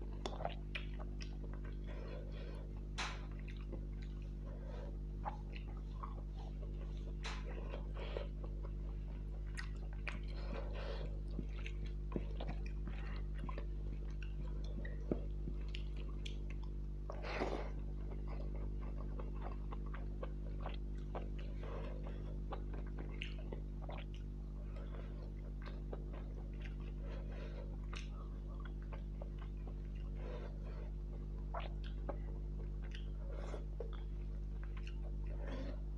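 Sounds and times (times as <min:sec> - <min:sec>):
low electrical hum: 0:00.0 - 0:35.9
person chewing food: 0:00.0 - 0:35.9
wet mouth clicks and smacks: 0:02.8 - 0:04.4, 0:05.2 - 0:10.3.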